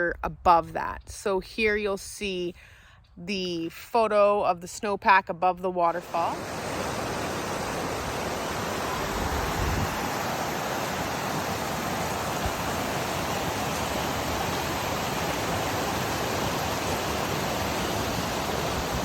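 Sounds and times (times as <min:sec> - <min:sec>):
waterfall roaring: 0:06.0 - 0:19.0.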